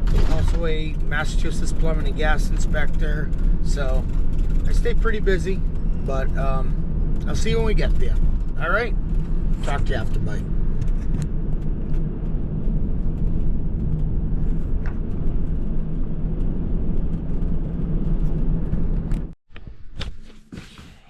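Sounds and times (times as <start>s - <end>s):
road and engine rumble in vehicle: 0.0s - 21.0s.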